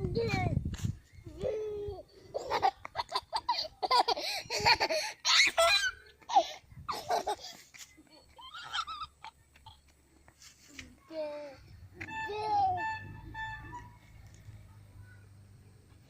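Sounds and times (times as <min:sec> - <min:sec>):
young children laughing: 0:01.3 - 0:09.9
children speaking: 0:10.6 - 0:15.8.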